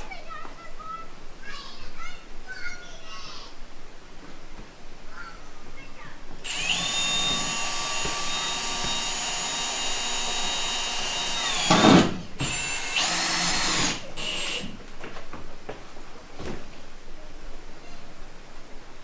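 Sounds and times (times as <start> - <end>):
electric drill whining: 6.4 - 14.8.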